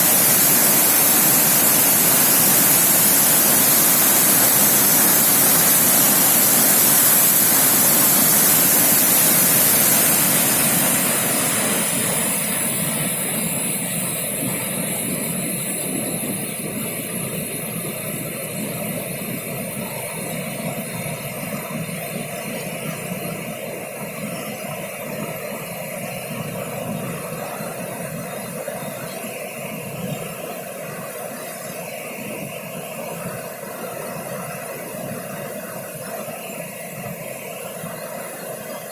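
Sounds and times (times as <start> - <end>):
waterfall rushing: 0.0 - 12.3.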